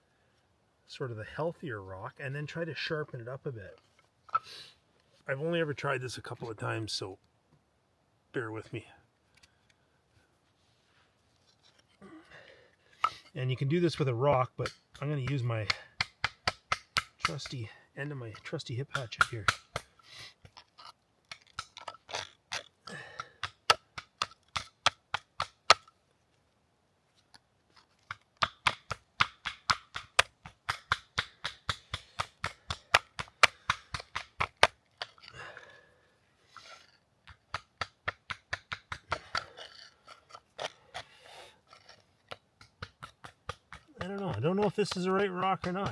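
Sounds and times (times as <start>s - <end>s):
hatchet tapping stone: 13.9s - 20.6s, 21.3s - 25.9s, 28.0s - 35.3s, 37.2s - 45.9s.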